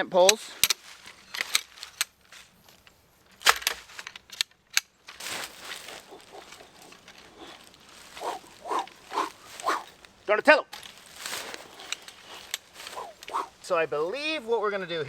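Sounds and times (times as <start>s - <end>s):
tent poles clicking and rustling: 0.0s - 14.6s
dog whining: 5.9s - 10.0s, 12.9s - 13.6s.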